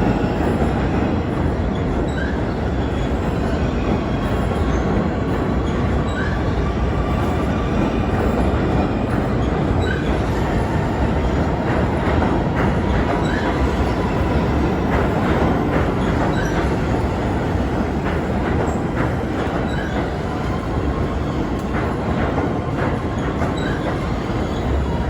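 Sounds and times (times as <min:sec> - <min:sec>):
subway train rumbling: 0:00.0 - 0:25.0.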